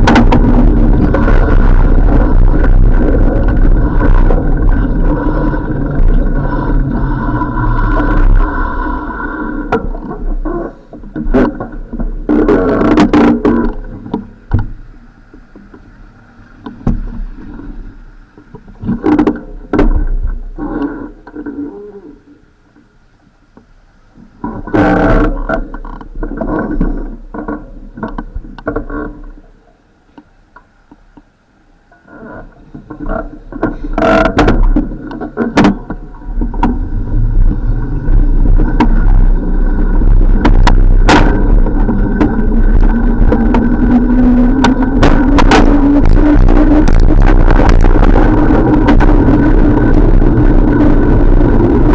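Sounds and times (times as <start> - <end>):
bicycle riding rumble: 0.0 - 22.2, 31.9 - 51.9
bicycle knocks and rattles: 33.6 - 37.5, 38.2 - 50.4.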